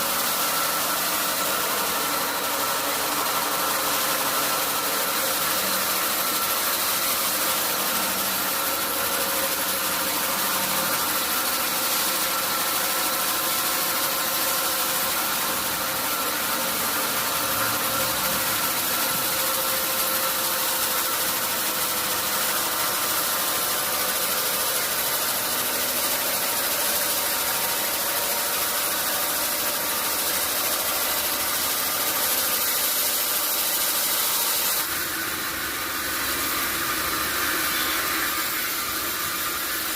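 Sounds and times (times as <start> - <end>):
sawmill machinery humming: 0.0 - 39.9
hiss: 17.2 - 39.9.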